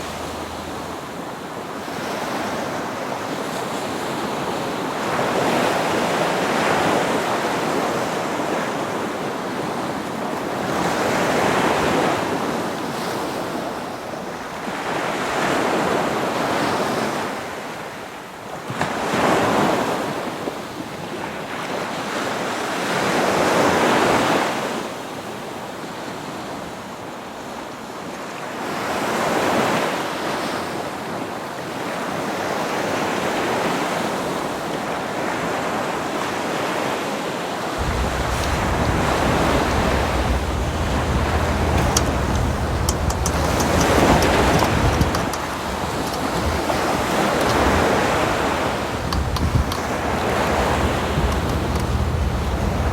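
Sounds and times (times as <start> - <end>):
wind on microphone: 0.0 - 1.3, 37.8 - 52.9
water splashing along boat hull: 0.0 - 2.6, 37.8 - 52.9.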